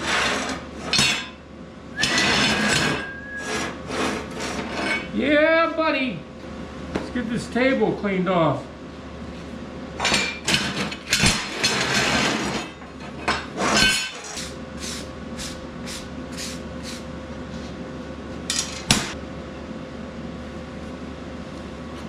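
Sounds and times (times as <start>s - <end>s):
steady hum: 0.0s - 22.0s
steel scrap clanking on metal table: 10.0s - 14.5s.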